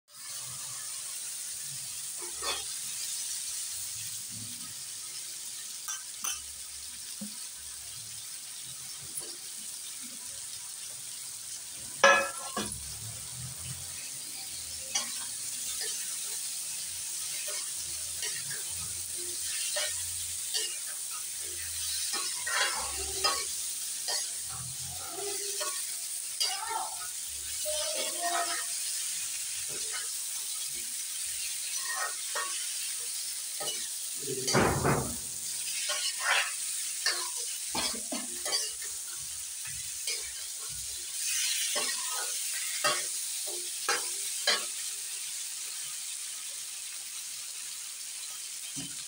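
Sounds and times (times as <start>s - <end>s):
spices sizzling in hot oil: 0.1s - 49.0s
vegetables dropping into sizzling oil: 0.1s - 49.0s
spatula scraping and clinking pan: 2.2s - 2.9s, 5.8s - 6.6s, 12.0s - 12.9s, 13.6s - 16.5s, 17.1s - 27.1s, 29.6s - 45.0s.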